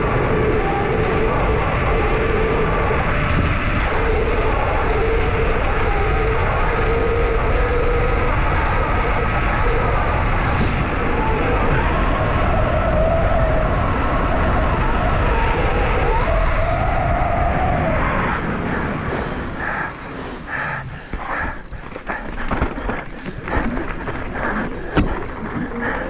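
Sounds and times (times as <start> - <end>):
wind on microphone: 0.0 - 26.0
mountain bike knocks and rattles: 21.1 - 25.8.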